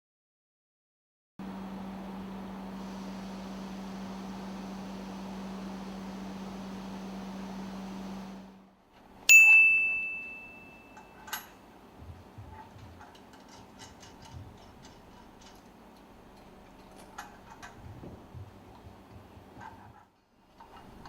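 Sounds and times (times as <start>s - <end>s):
steady hum: 1.4s - 21.0s
loud clear ding: 9.3s - 11.5s.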